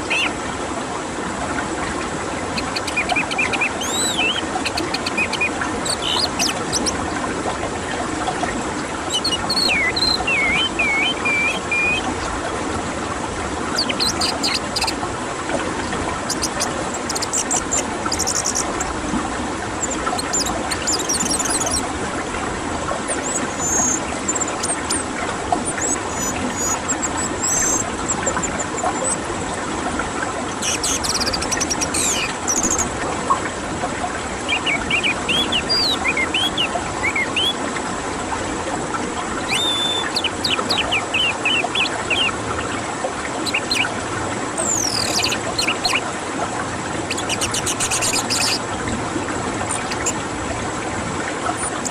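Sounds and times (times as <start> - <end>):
rushing water: 0.0 - 51.9
thrush singing: 9.1 - 12.1.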